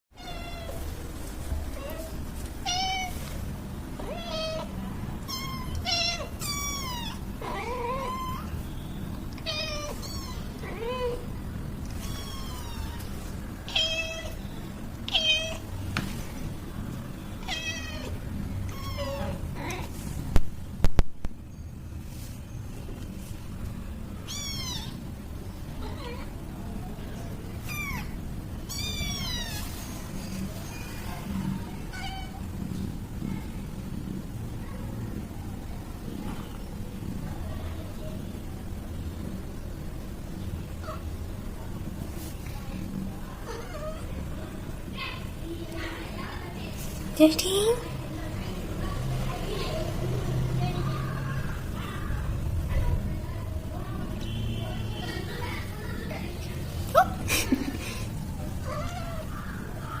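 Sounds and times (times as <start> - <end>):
kitten meowing: 4.1 - 8.5, 9.4 - 11.2, 12.0 - 13.1, 18.7 - 19.8, 24.3 - 25.0, 28.7 - 29.6.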